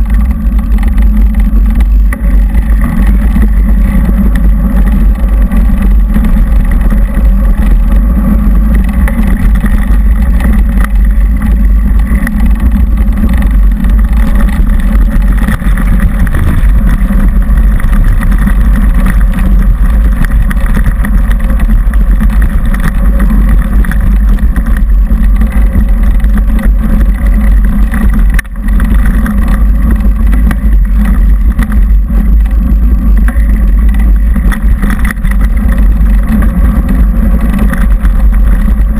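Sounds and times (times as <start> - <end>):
mountain bike rumbling on dirt trail: 0.0 - 38.9
wind buffeting microphone: 0.0 - 38.9.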